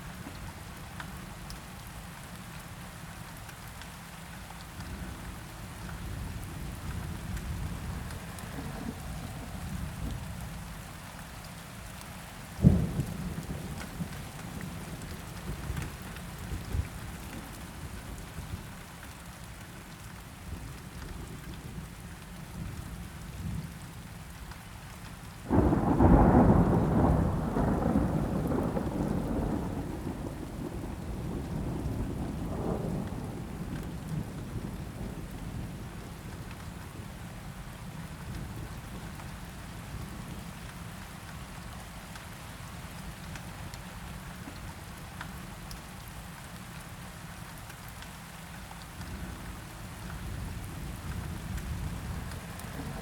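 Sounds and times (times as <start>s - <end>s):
steady rain: 0.0s - 53.0s
rolling thunderclap: 25.5s - 35.6s, 50.2s - 53.0s.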